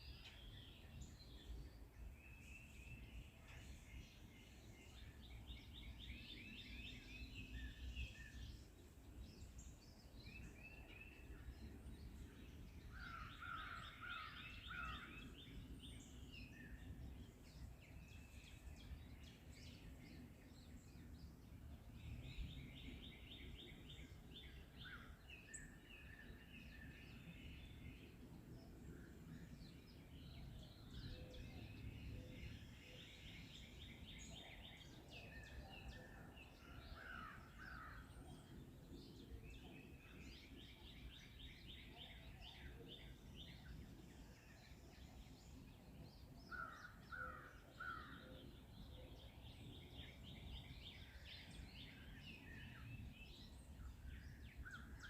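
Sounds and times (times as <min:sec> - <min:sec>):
faint songbirds singing: 0:00.0 - 0:55.0.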